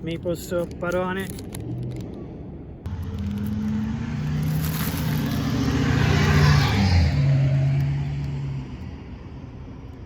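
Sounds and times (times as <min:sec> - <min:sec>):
car driving past: 0:02.9 - 0:08.6.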